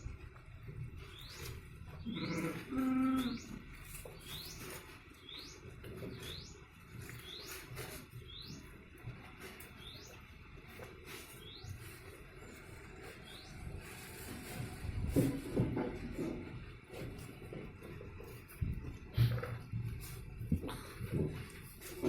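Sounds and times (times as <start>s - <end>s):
bird chirping: 1.0s - 8.8s, 9.4s - 10.3s, 11.3s - 12.1s, 13.1s - 14.0s
farm animal calling: 1.0s - 8.9s.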